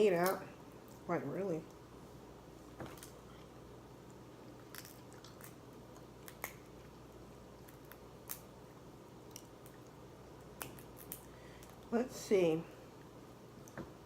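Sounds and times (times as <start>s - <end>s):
wet eating sounds: 2.9s - 8.4s
crab shell cracking: 4.1s - 6.8s, 7.6s - 8.6s, 9.2s - 11.9s.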